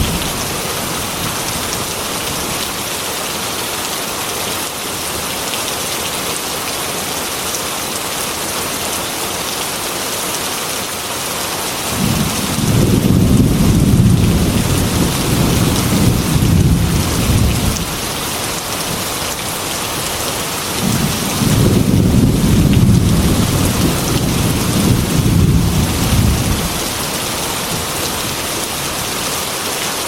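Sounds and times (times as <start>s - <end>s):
thunder rumbling: 0.0s - 2.0s, 12.0s - 18.2s, 20.8s - 27.0s
heavy rain pouring: 0.0s - 30.0s.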